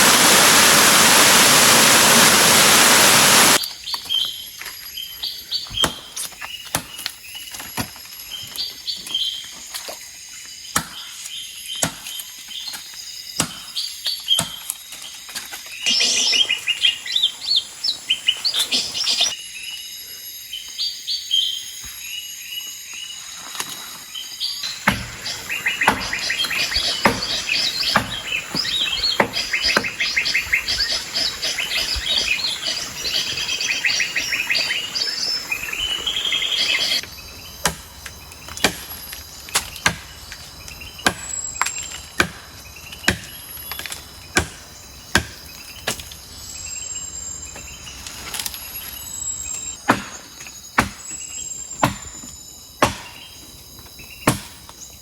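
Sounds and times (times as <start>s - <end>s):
birds chirping: 0.0s - 7.5s, 15.6s - 19.4s, 24.2s - 51.9s
sharp knocks: 24.7s - 30.0s.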